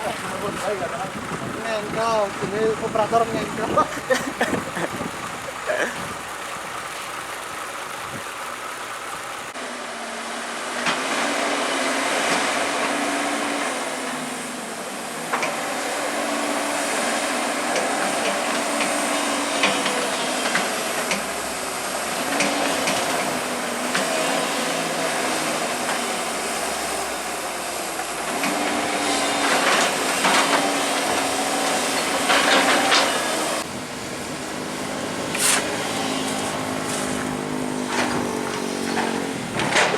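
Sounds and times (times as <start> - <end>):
excavator diesel engine under load: 0.0 - 39.9.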